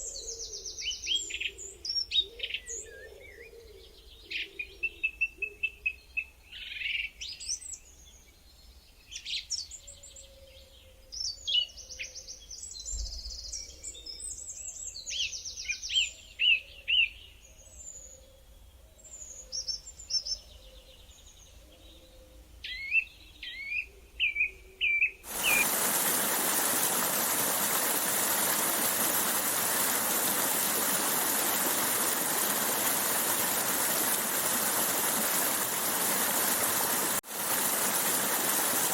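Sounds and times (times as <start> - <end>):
running water rushing: 25.3 - 38.9.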